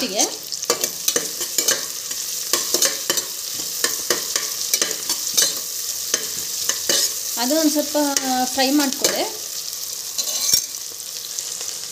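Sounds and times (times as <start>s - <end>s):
onions sizzling in hot oil: 0.0s - 11.9s
spatula scraping pot: 0.2s - 7.2s.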